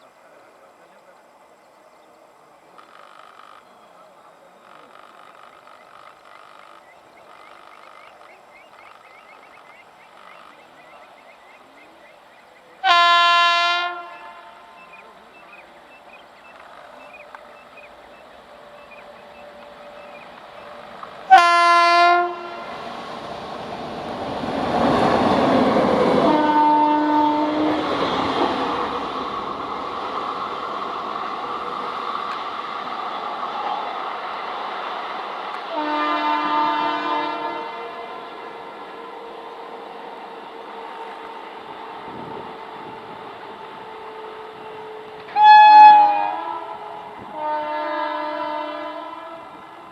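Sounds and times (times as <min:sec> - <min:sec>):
train rumbling on rails: 0:02.2 - 0:49.9
locomotive horn blasts: 0:12.8 - 0:14.9, 0:18.6 - 0:22.8, 0:26.2 - 0:28.0, 0:35.7 - 0:39.0, 0:43.6 - 0:49.7.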